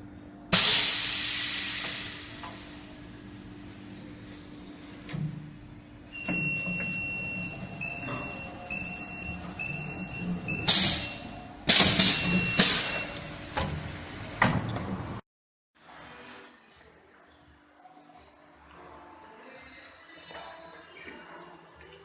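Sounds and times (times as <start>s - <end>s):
intermittent lower machine tone: 2.4s - 13.8s
machine high whine: 6.0s - 13.6s.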